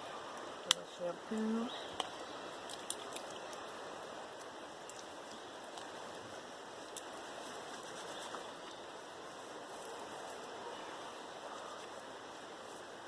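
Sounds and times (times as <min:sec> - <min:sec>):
river flowing: 0:00.0 - 0:13.0.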